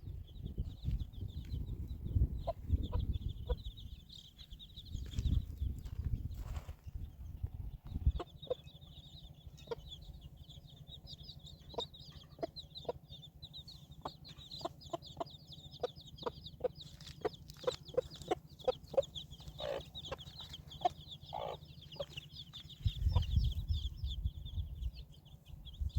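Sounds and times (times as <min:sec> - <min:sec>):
low rumble: 0:00.0 - 0:12.1, 0:21.1 - 0:25.9
chickens clucking: 0:00.4 - 0:25.9
high-pitched chirping: 0:07.6 - 0:25.9.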